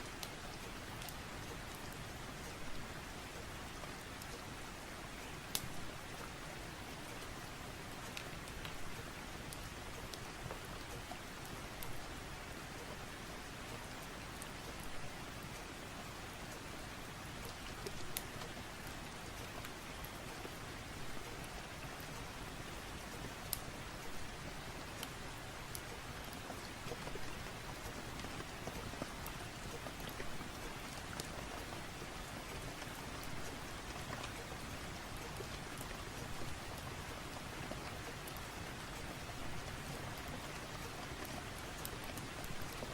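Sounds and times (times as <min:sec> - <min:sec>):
steady rain: 0:00.0 - 0:42.9
wood fire crackling: 0:00.0 - 0:42.9
faint sharp clicks: 0:00.2 - 0:02.6, 0:05.5 - 0:06.3, 0:21.2 - 0:24.3, 0:25.0 - 0:42.9.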